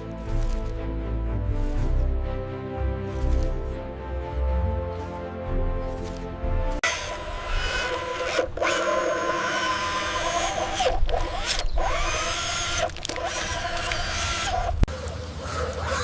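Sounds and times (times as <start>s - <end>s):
small electric motors whirring: 6.8s - 14.9s.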